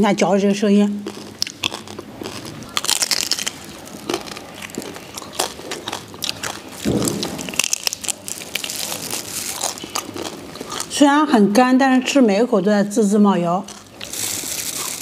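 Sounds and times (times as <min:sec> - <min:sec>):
crispy pork skin crunching: 0:01.0 - 0:11.0, 0:13.6 - 0:15.0.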